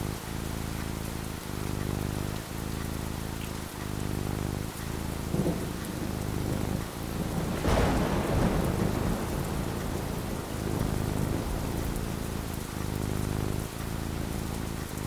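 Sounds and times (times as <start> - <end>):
steady falling rain: 0.0 - 15.0
thunder clap rumbling: 5.3 - 15.0.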